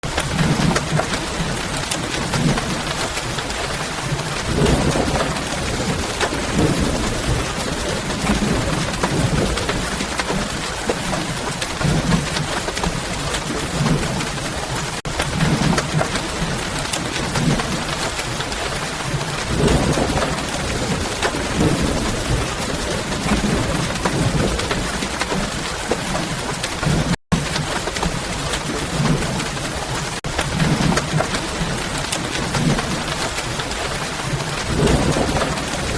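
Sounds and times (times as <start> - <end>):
steady rain falling: 0.0 - 35.9.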